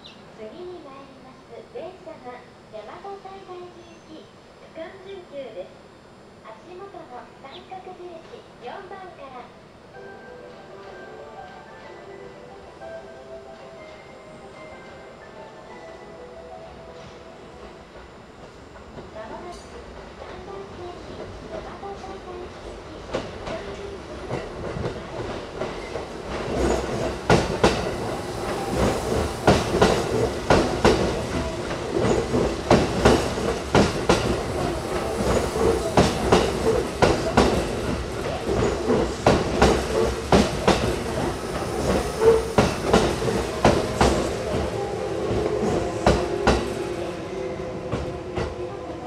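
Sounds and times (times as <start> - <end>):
train rumble: 8.0 - 49.0
train wheels clacking: 23.0 - 49.0.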